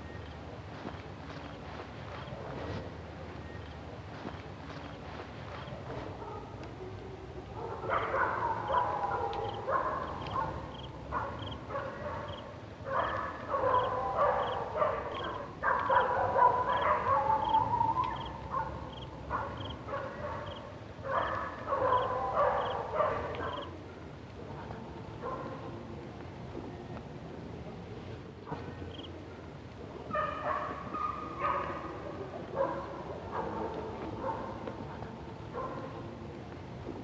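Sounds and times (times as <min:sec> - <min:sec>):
dogs barking and howling: 0:06.0 - 0:23.8, 0:30.0 - 0:36.0.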